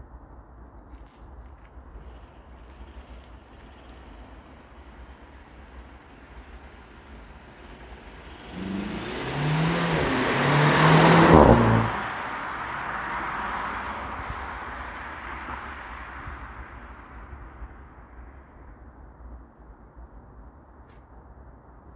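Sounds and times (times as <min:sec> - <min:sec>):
road noise: 0:00.0 - 0:21.9
car engine accelerating: 0:03.2 - 0:17.4.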